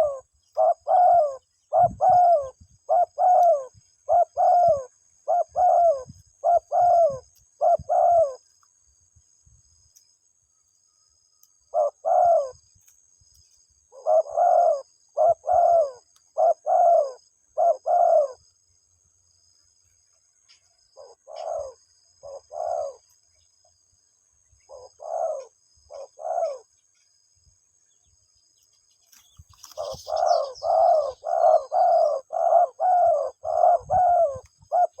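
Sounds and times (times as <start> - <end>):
dove cooing: 0.0 - 8.5, 11.7 - 12.6, 13.9 - 18.4, 21.0 - 23.1, 24.7 - 26.7, 29.6 - 35.0.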